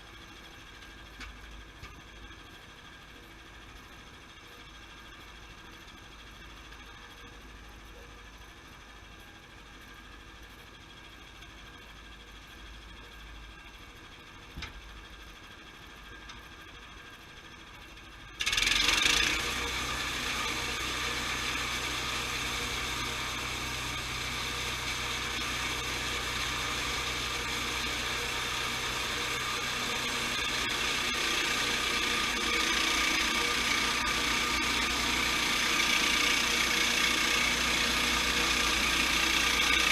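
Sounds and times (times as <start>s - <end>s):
sawmill machinery running: 15.1s - 39.9s.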